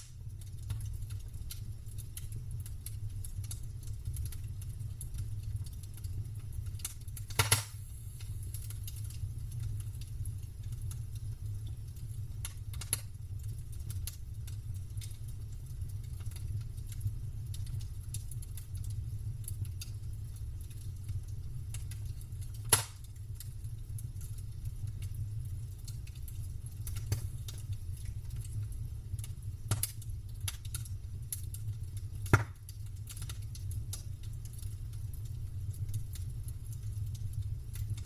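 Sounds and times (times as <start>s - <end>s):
campfire crackling: 0.0s - 38.0s
fire popping sharply: 7.2s - 8.8s, 22.6s - 23.1s, 29.6s - 30.6s, 32.2s - 33.3s.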